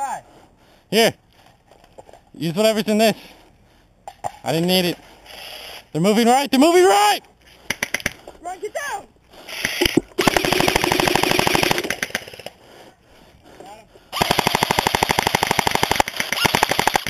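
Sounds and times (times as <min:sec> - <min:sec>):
airsoft rifle rapid fire: 0:09.5 - 0:12.5, 0:14.2 - 0:17.0.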